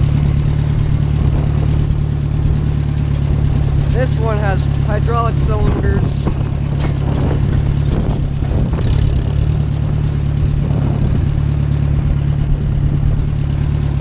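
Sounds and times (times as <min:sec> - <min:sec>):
tractor engine drone: 0:00.0 - 0:14.0.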